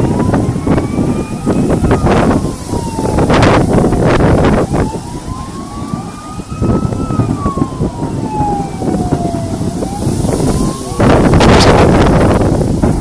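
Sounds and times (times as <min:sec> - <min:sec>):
siren wailing: 0:00.0 - 0:13.0
wind buffeting microphone: 0:00.0 - 0:13.0.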